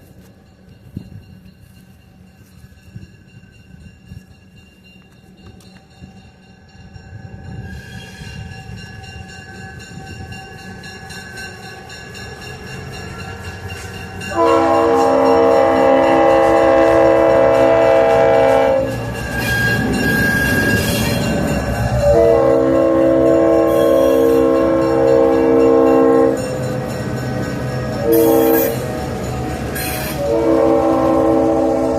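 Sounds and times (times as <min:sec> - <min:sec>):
train rumble: 0:00.0 - 0:31.9
locomotive horn blast: 0:14.3 - 0:26.9, 0:27.9 - 0:31.9.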